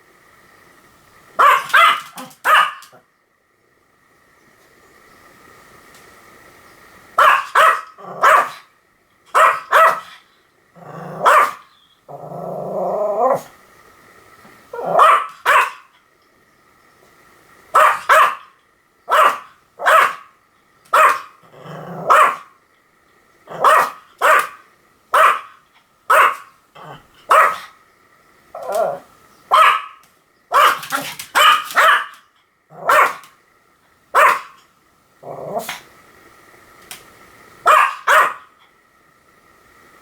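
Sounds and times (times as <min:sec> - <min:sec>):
dog barking sharply: 0:01.4 - 0:03.0, 0:07.2 - 0:08.6, 0:09.4 - 0:10.1, 0:11.2 - 0:11.6, 0:15.0 - 0:15.9, 0:17.8 - 0:18.5, 0:19.1 - 0:20.3, 0:20.9 - 0:21.3, 0:23.6 - 0:24.6, 0:25.2 - 0:25.5, 0:26.1 - 0:26.5, 0:29.5 - 0:32.2, 0:32.9 - 0:33.3, 0:34.2 - 0:34.6, 0:37.7 - 0:38.5
dog growling: 0:08.0 - 0:08.4, 0:10.8 - 0:11.4, 0:12.1 - 0:13.5, 0:21.4 - 0:22.4, 0:26.8 - 0:27.2, 0:28.6 - 0:29.1, 0:32.7 - 0:33.1, 0:35.2 - 0:35.9.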